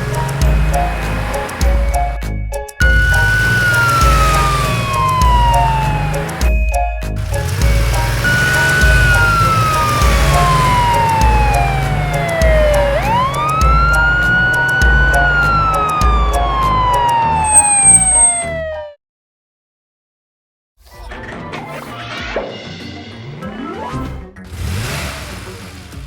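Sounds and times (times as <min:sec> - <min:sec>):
background music with low beat: 0:00.0 - 0:18.2
siren wailing: 0:02.8 - 0:06.6, 0:07.2 - 0:19.0.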